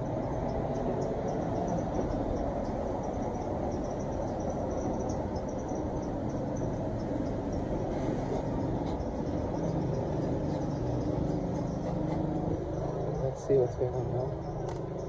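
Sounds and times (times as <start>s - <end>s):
high insect chirps: 0.0s - 15.0s.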